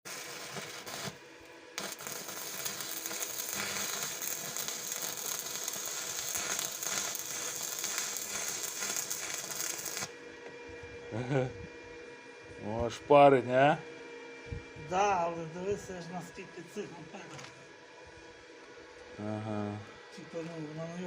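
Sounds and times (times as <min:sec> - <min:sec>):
welding arc crackling: 0:00.0 - 0:10.2.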